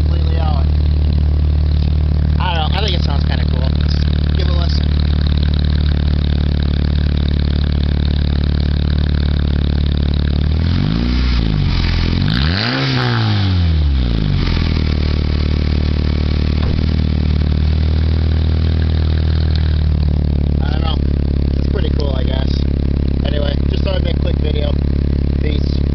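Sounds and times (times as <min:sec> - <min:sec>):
car engine idling and revving: 0:00.0 - 0:25.9.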